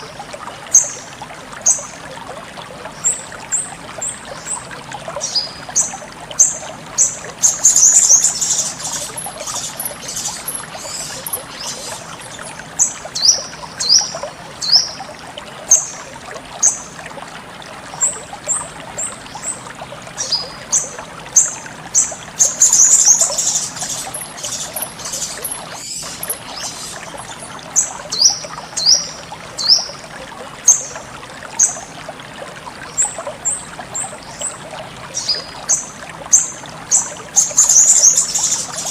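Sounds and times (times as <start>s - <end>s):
trickling water: 0.0s - 38.9s
bird chirping and twittering: 5.2s - 15.0s, 20.2s - 29.9s, 35.2s - 38.9s.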